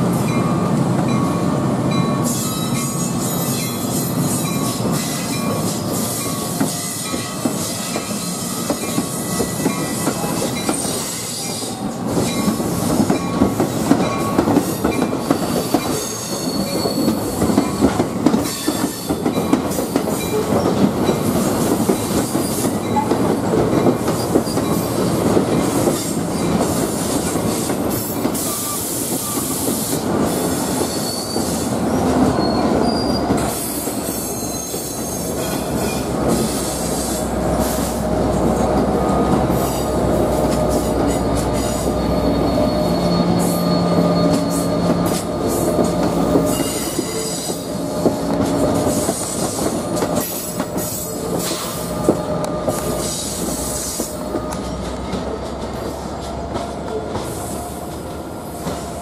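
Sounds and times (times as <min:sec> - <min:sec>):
train wheels rumbling on rail: 0:00.0 - 0:59.0
high wheel squeals: 0:15.2 - 0:19.2, 0:28.3 - 0:38.0, 0:39.1 - 0:54.8.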